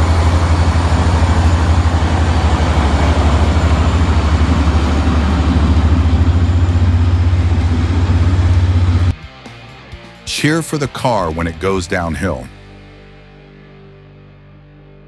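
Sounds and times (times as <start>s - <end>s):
truck engine running: 0.0s - 9.2s.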